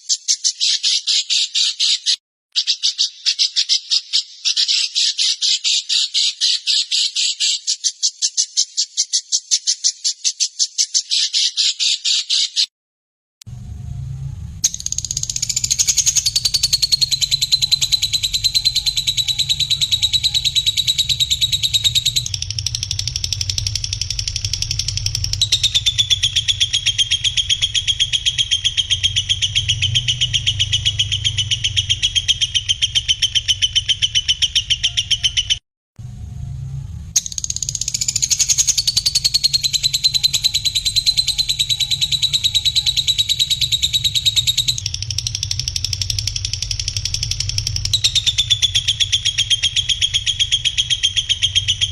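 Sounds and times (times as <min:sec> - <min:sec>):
songbird trills: 0:00.0 - 0:12.7, 0:14.6 - 0:35.6, 0:37.2 - 0:51.9
steady low hum: 0:13.4 - 0:34.1, 0:36.0 - 0:51.9.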